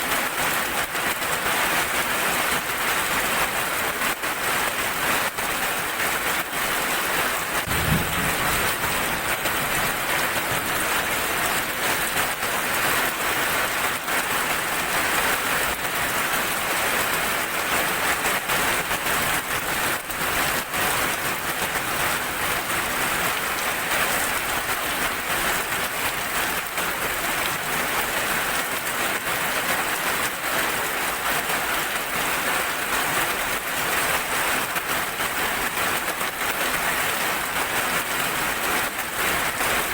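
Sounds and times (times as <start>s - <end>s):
heavy rain: 0.0s - 39.9s
low thump: 7.7s - 9.5s.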